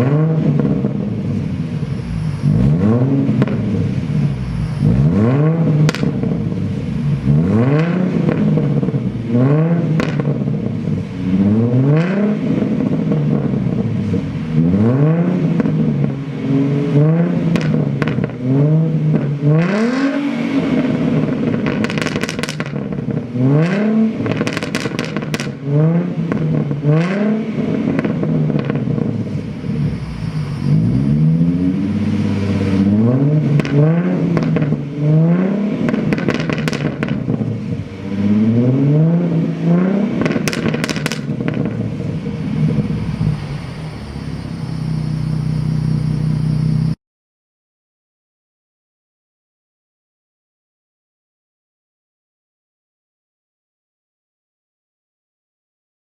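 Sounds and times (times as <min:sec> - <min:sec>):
exhaust crackles and pops: 0:00.0 - 0:11.1, 0:12.0 - 0:16.3, 0:17.4 - 0:19.7, 0:20.8 - 0:30.1, 0:32.8 - 0:43.4
car engine revving: 0:00.0 - 0:47.0.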